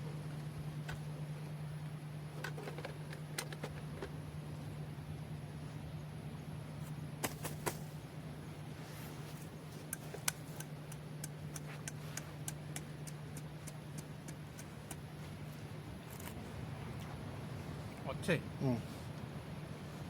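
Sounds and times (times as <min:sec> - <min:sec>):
steady low hum: 0:00.0 - 0:20.0
sharp clicks: 0:09.9 - 0:15.1.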